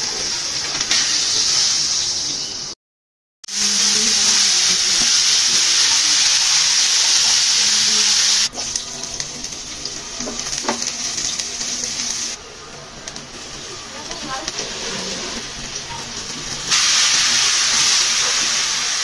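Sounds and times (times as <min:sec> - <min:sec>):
vegetables sizzling in hot oil: 0:00.0 - 0:02.5, 0:03.5 - 0:12.4, 0:13.0 - 0:19.0
onions sizzling: 0:00.0 - 0:02.6, 0:03.5 - 0:19.0.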